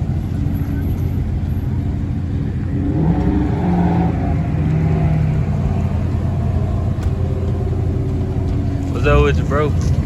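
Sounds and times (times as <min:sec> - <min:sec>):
steady low rumble: 0:00.0 - 0:10.0
car engine revving: 0:02.0 - 0:10.0.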